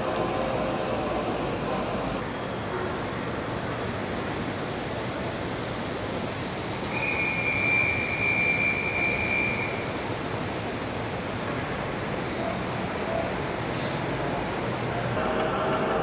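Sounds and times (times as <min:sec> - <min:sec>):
rushing rail noise: 0:00.0 - 0:16.0
high wheel squeal: 0:05.0 - 0:05.8, 0:06.8 - 0:10.1, 0:11.6 - 0:14.3.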